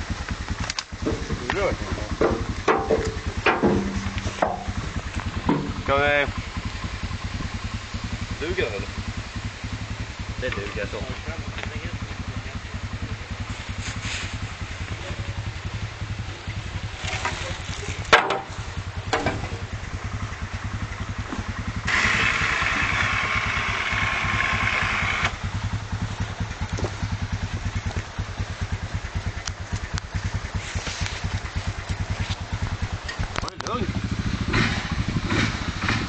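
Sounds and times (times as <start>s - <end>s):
hissing rush: 0.0s - 36.0s
tractor engine running: 0.0s - 36.0s
sharp knock: 2.2s - 4.8s.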